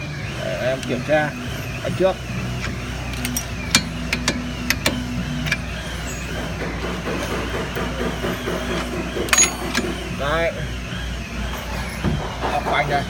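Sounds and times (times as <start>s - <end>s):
low engine hum: 0.0s - 13.0s
metallic tool clicks and knocks: 9.3s - 9.9s.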